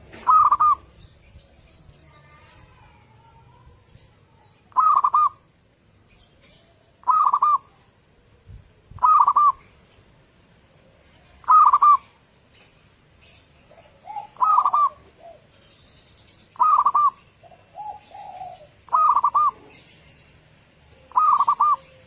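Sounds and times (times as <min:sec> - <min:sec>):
dove cooing: 0:00.0 - 0:01.0, 0:04.7 - 0:05.5, 0:07.0 - 0:07.8, 0:08.9 - 0:09.7, 0:11.2 - 0:12.2, 0:13.7 - 0:15.8, 0:16.6 - 0:20.0, 0:20.8 - 0:22.0.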